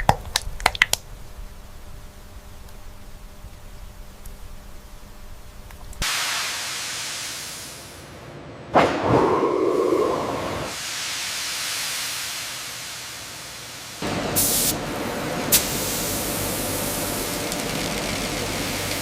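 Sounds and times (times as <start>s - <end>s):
low steady hum: 0.0s - 6.0s
sharp burst of hiss: 6.0s - 8.1s, 10.7s - 14.8s.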